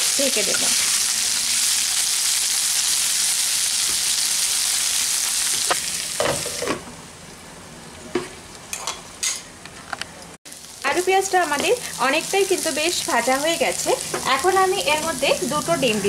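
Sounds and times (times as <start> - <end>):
potatoes sizzling in hot oil: 0.0 - 6.6, 10.5 - 16.0.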